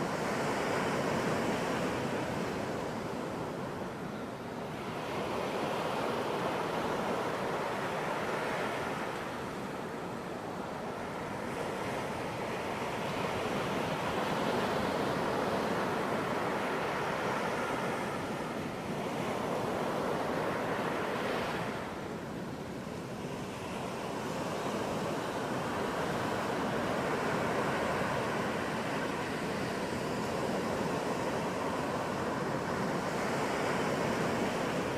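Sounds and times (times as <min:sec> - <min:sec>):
ocean surf breaking on beach: 0:00.0 - 0:34.9.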